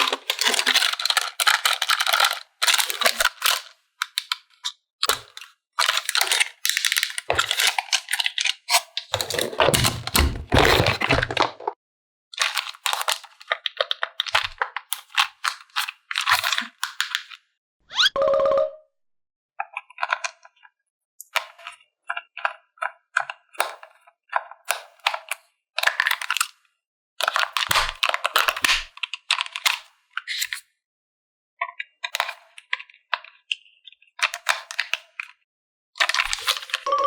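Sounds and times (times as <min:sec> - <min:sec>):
plastic toy parts clicking: 0:00.0 - 0:11.7.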